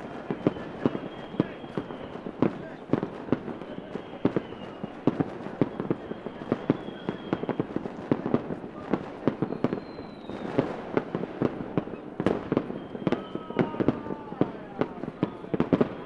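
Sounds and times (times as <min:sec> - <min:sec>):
fireworks bangs and pops: 0:00.0 - 0:16.0
rocket whistles sliding down: 0:09.4 - 0:10.6, 0:12.6 - 0:13.6.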